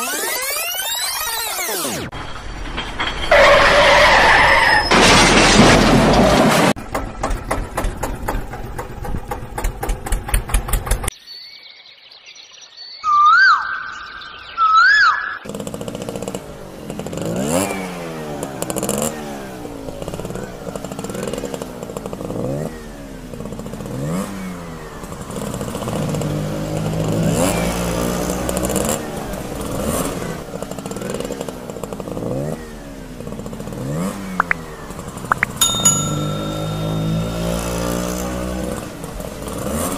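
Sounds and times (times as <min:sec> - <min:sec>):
motor engine revving: 0:15.5 - 0:35.4, 0:36.0 - 0:39.9.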